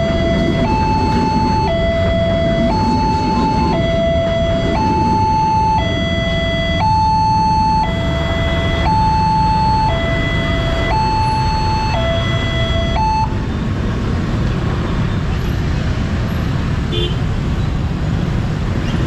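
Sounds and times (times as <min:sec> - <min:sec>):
level crossing two-tone alarm: 0:00.0 - 0:13.4
low traffic rumble: 0:00.0 - 0:19.0.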